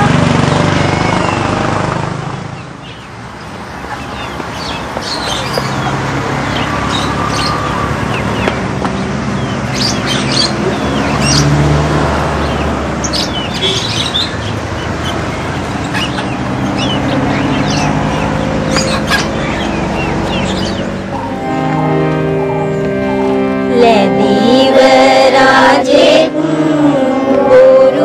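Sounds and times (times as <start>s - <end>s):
small birds chirping: 0.5s - 1.6s, 2.5s - 11.8s, 12.4s - 21.7s.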